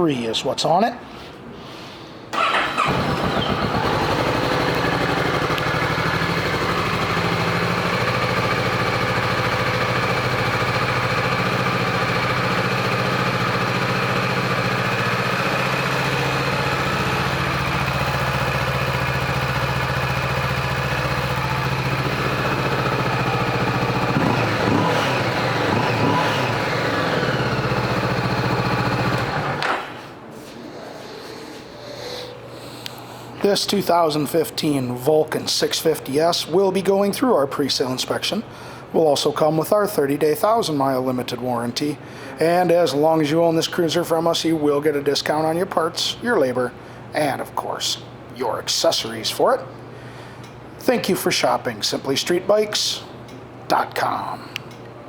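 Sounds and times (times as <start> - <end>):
motorcycle engine revs: 2.4 - 29.6
motorcycle engine starting and idling: 2.4 - 30.0.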